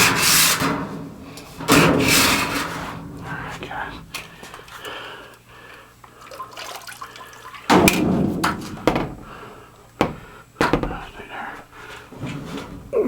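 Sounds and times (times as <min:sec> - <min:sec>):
water splashing and sloshing: 0:06.1 - 0:09.4
sharp knock: 0:08.0 - 0:09.3, 0:10.0 - 0:11.3.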